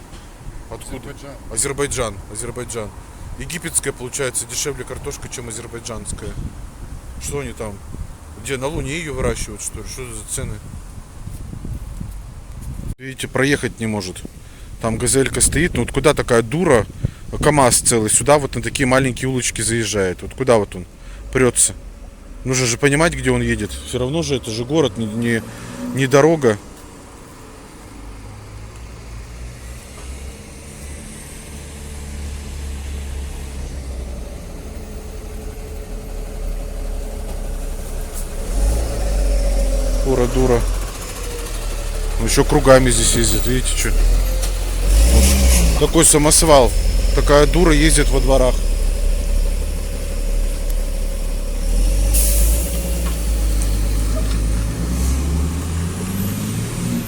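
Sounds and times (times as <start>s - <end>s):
vehicle engine rumble: 0.0s - 13.0s, 13.6s - 57.0s
air brakes hiss: 51.9s - 54.3s.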